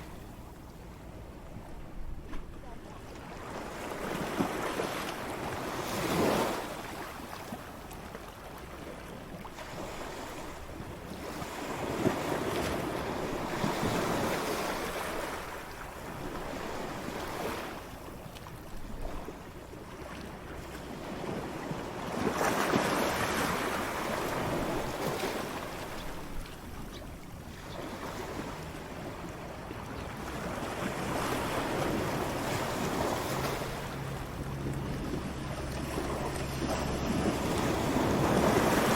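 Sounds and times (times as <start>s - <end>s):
ocean waves breaking on shore: 0.0s - 38.9s.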